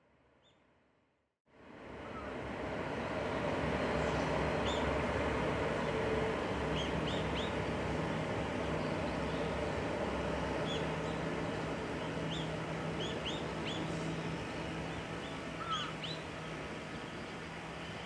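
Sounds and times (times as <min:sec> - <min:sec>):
outdoor background noise: 0:00.0 - 0:18.0
small birds chirping: 0:06.8 - 0:07.6, 0:10.6 - 0:11.3, 0:12.0 - 0:16.3.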